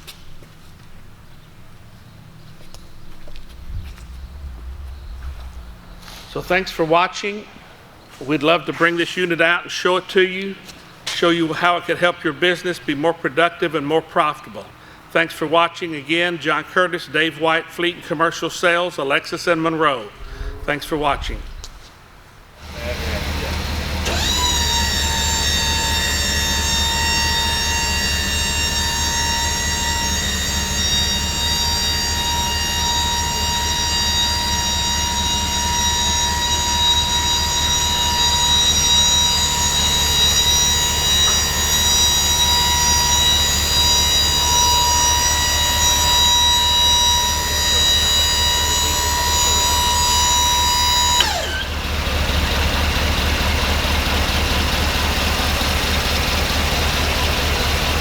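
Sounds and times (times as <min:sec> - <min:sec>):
truck engine idling: 0:00.0 - 0:06.9, 0:20.2 - 0:44.6, 0:51.2 - 0:58.0
hydraulic pump motor whine: 0:01.7 - 0:07.0, 0:22.6 - 0:58.0.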